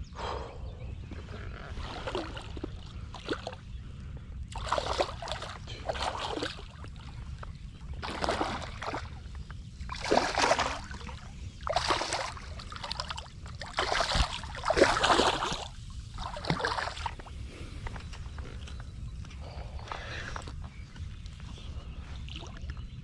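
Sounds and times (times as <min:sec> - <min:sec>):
wind rumble on microphone: 0:00.0 - 0:23.0
water splashing at shoreline: 0:01.7 - 0:03.6, 0:04.5 - 0:17.4.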